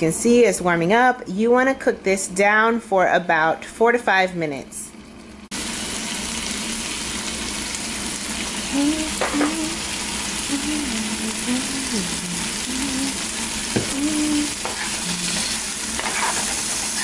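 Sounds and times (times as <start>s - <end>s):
vegetables sizzling in a frying pan: 5.5s - 17.0s.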